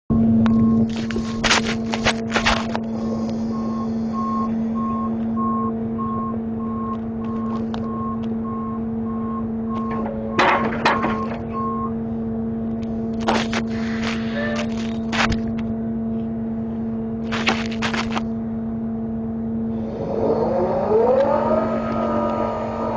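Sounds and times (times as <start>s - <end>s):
reversing alarm beeping: 0.1s - 1.4s, 2.9s - 12.0s
truck engine running: 0.1s - 22.9s
sharp metallic clanks: 9.8s - 11.6s.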